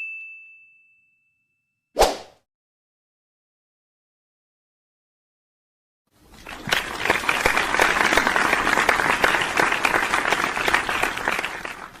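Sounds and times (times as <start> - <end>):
hands clapping: 6.4 - 12.0.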